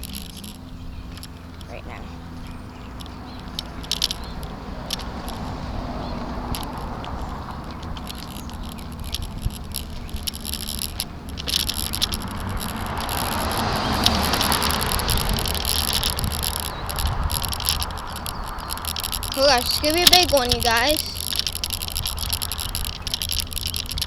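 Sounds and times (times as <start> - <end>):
bicycle rattles and clicks: 0.0 - 24.0
tyre noise: 0.0 - 24.0
wind rush: 11.1 - 21.3.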